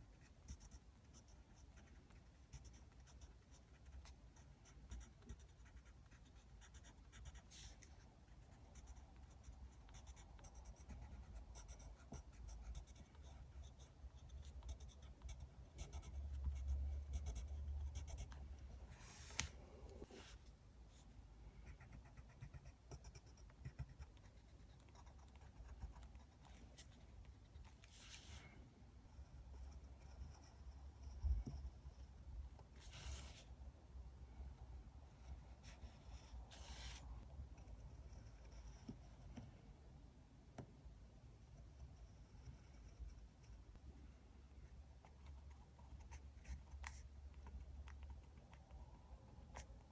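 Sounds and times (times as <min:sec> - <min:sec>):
pen scratching on paper: 0:00.1 - 0:18.4, 0:21.6 - 0:28.4, 0:32.8 - 0:33.5, 0:35.2 - 0:37.0.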